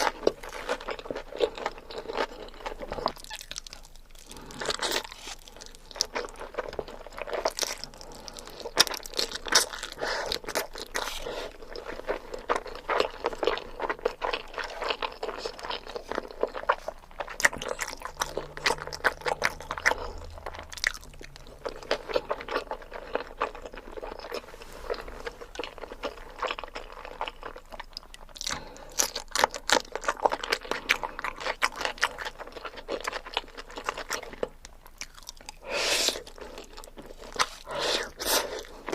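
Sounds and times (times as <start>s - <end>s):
person chewing and biting: 0.0s - 38.9s.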